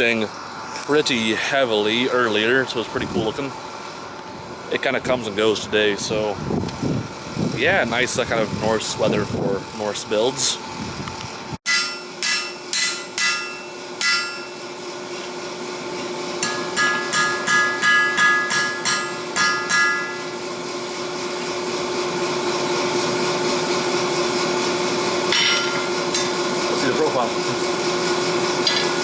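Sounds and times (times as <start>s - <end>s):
steady hum: 0.0s - 29.0s
hammer ringing on blade on anvil: 11.7s - 14.7s, 16.4s - 20.4s, 25.3s - 26.4s.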